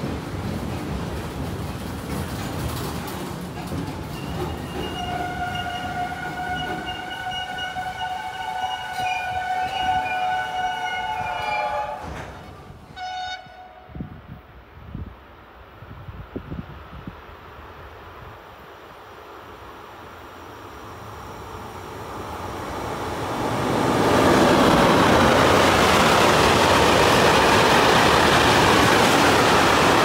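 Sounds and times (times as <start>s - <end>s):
train rumbling past: 0.0s - 15.0s, 16.4s - 30.0s
train horn blast: 4.8s - 14.2s.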